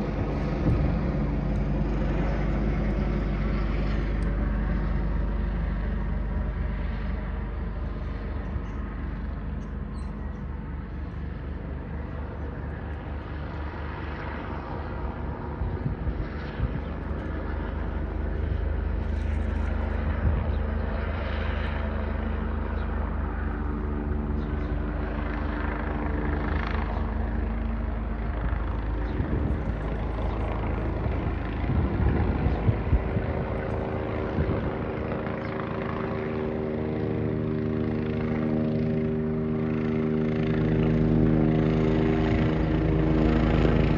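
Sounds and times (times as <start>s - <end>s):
helicopter rotor thudding: 0.0s - 4.7s
helicopter engine hum: 0.0s - 43.9s.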